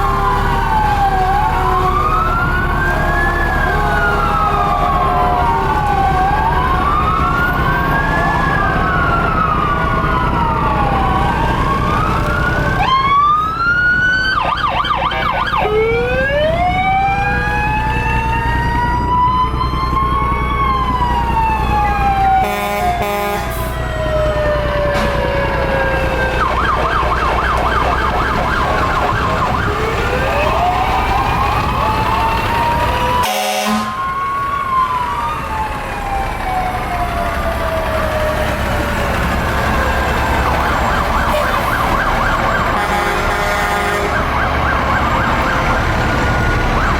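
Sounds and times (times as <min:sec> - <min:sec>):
fire truck sirens wailing: 0:00.0 - 0:46.9
truck engines rumbling: 0:00.0 - 0:46.9.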